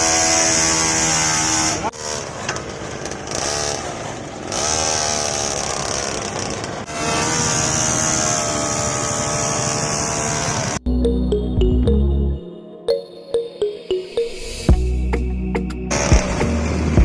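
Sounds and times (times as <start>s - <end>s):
small motor buzzing: 4.5s - 10.8s.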